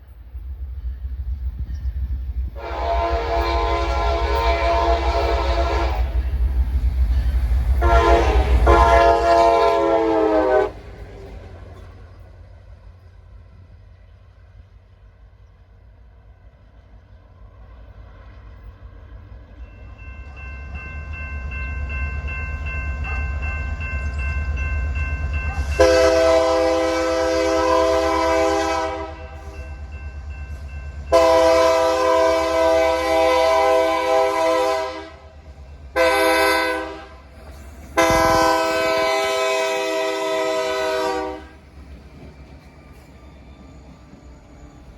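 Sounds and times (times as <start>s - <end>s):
diesel locomotive engine rumble: 0.0s - 44.9s
train horn blasts: 2.6s - 6.4s, 7.7s - 11.0s, 25.5s - 29.8s, 31.1s - 37.3s, 37.9s - 41.6s.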